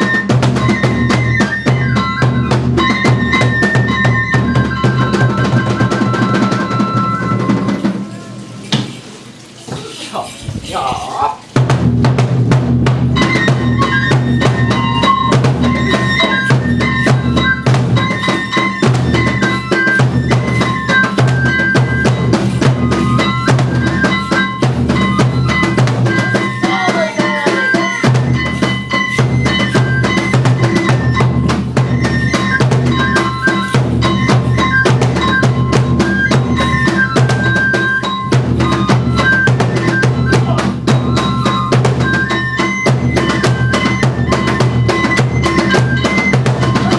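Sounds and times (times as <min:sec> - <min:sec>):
high bamboo flute melody: 0:00.0 - 0:08.5, 0:11.6 - 0:46.9
taiko drums beating: 0:00.0 - 0:09.1, 0:10.5 - 0:46.9.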